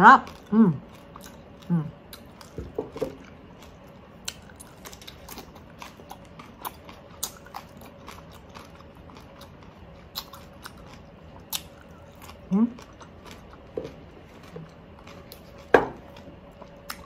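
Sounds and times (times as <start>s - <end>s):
crunchy chewing of cucumber: 0.2s - 17.0s.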